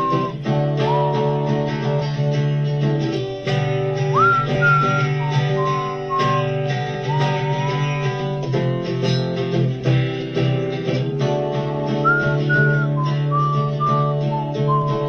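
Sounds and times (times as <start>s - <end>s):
whistled melody: 0.0s - 2.3s, 3.5s - 9.3s, 11.9s - 15.0s
strummed acoustic guitar chords: 0.0s - 15.0s.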